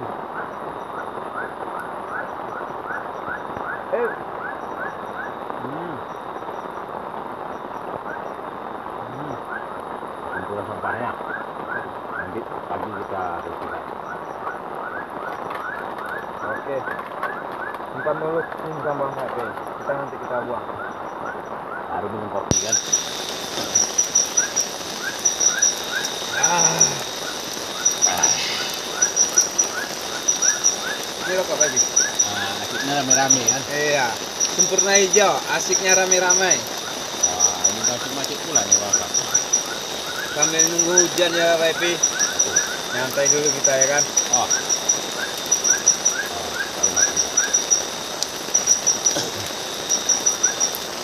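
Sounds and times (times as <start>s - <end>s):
insect chorus whine: 0.0s - 51.0s
wavering whine-like call: 0.3s - 6.8s, 9.1s - 12.4s, 14.1s - 19.2s, 22.6s - 51.0s
short rising chirps: 22.6s - 38.0s
short rising call: 25.9s - 30.6s.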